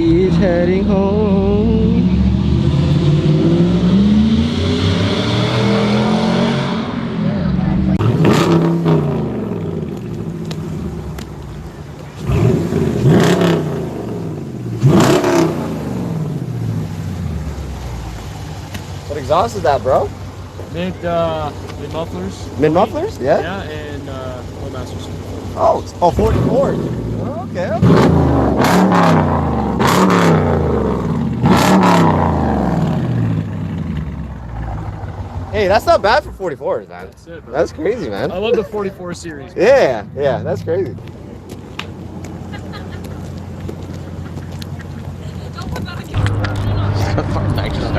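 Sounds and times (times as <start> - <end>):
car exhaust revving: 0.0 - 36.9, 40.0 - 47.9
person speaking: 35.7 - 41.0.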